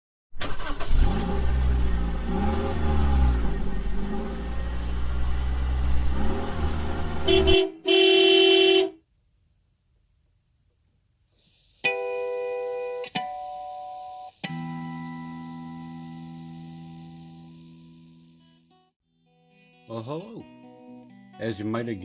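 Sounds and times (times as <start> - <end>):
car engine revving: 0.4 - 8.9
car horn honking: 7.0 - 9.0.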